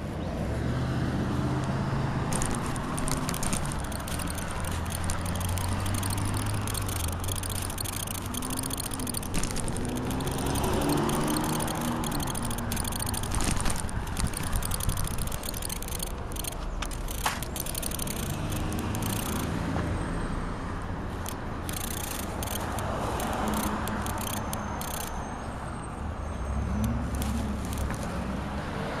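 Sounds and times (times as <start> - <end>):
car engines and passing vehicles: 0.0 - 29.0
engine revving pulling away: 0.6 - 19.8
scattered clicks: 1.6 - 19.9, 21.1 - 25.5, 26.7 - 28.4.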